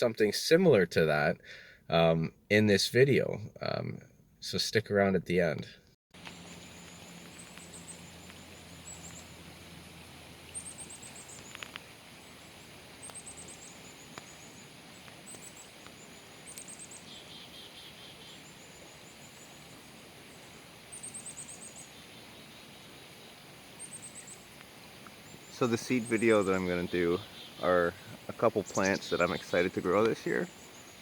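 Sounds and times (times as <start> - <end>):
songbirds chirping: 5.2 - 31.0.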